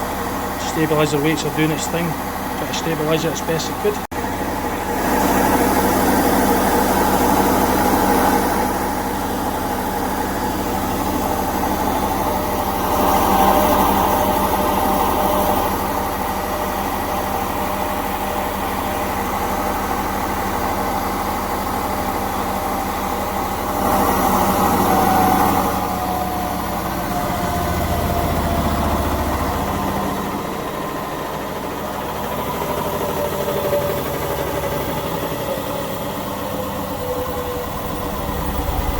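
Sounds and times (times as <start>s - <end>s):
washing machine spinning: 0.0s - 38.9s.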